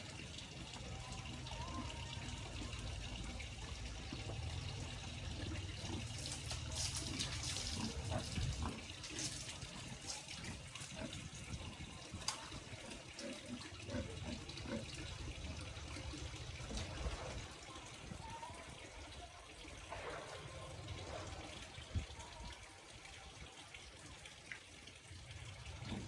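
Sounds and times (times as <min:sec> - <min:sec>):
water running and splashing: 0:02.4 - 0:22.1.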